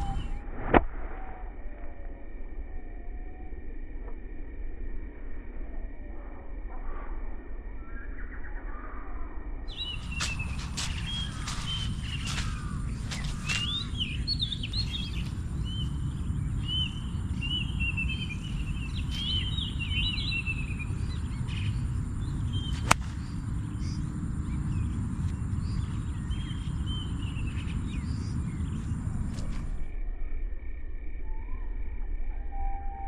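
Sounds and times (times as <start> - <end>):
birds chirping: 9.7 - 29.8
low outdoor noise: 9.7 - 33.0.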